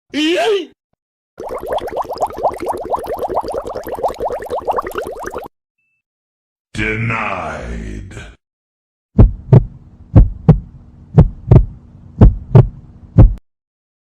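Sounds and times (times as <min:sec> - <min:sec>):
heartbeat thumps: 0:09.2 - 0:13.4.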